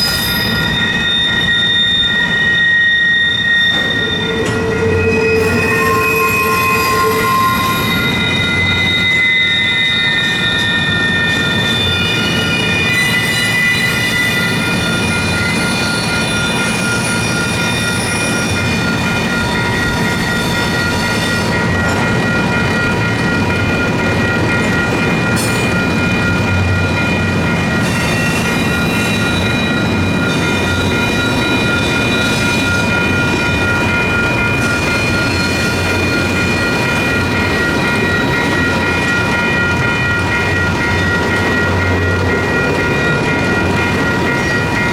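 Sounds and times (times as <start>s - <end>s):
wheels squealing on curve: 0.0s - 18.6s
crossing bell ringing: 0.0s - 44.9s
train wheels rumbling on rails: 0.0s - 44.9s.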